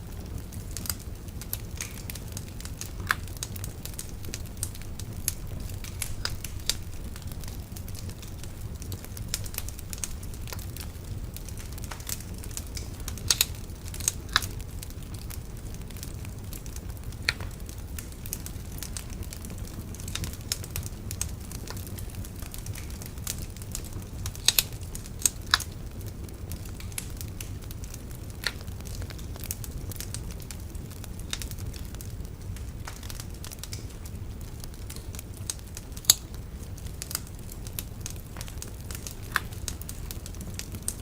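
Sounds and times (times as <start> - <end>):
bonfire low rumble: 0.0 - 41.0
burning wood crackles and pops: 0.0 - 41.0
loud wood snaps: 0.9 - 14.6, 17.1 - 17.7, 24.2 - 25.7, 28.3 - 29.3, 34.9 - 36.3, 37.1 - 40.0.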